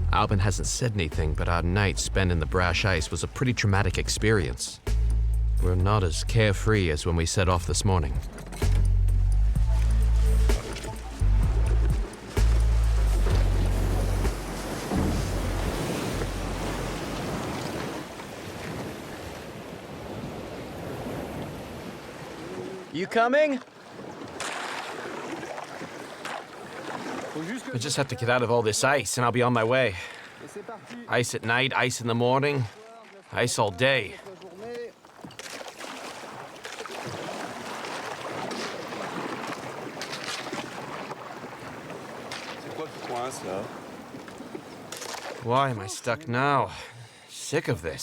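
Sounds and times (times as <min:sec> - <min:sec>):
open water wash: 0:09.4 - 0:31.2, 0:32.4 - 0:47.3
ice knocking against boat: 0:10.4 - 0:16.4.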